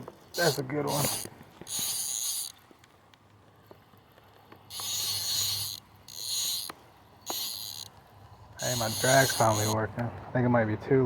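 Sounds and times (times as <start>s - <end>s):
fishing reel drag buzzing: 0.3s - 2.6s, 4.7s - 8.0s, 8.6s - 9.9s.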